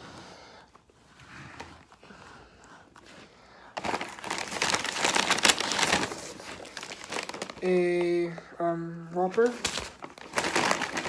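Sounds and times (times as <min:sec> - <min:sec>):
paper packaging crinkling: 0:03.7 - 0:08.5, 0:09.2 - 0:11.0.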